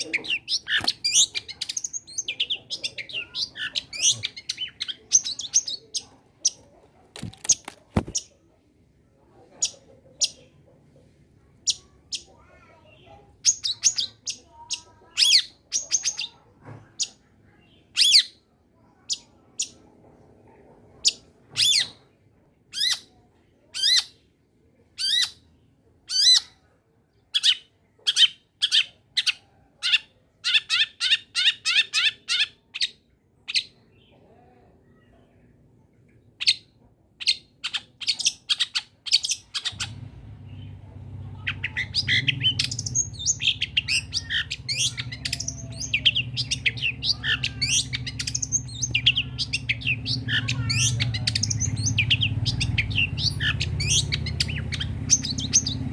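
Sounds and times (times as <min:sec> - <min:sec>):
bird chirping: 0:00.0 - 0:08.5, 0:36.0 - 0:55.9.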